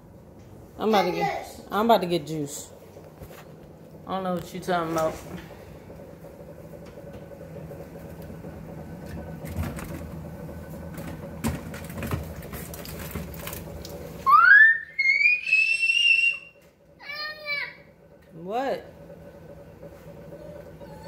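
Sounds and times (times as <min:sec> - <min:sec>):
steady low hum: 0:00.0 - 0:21.0
high-pitched scream: 0:14.3 - 0:16.6.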